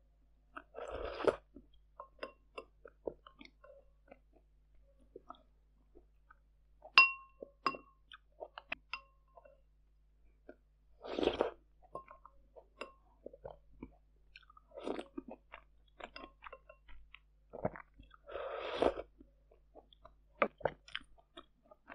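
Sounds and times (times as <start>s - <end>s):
wet chewing: 19.6s - 21.9s.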